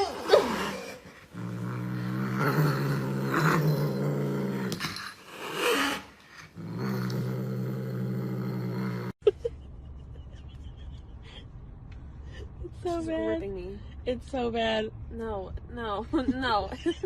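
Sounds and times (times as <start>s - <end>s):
cat growling: 0.0s - 9.2s.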